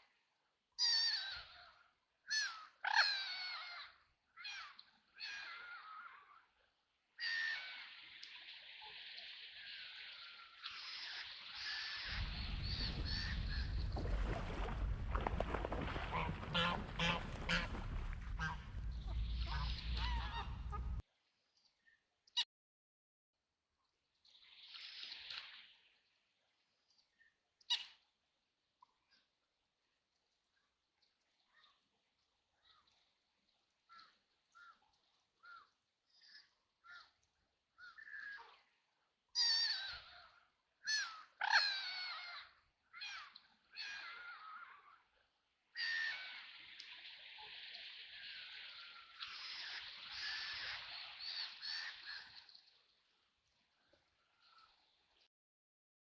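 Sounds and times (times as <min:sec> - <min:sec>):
ducks quacking: 0:12.0 - 0:21.0
low steady rumble: 0:12.1 - 0:21.0.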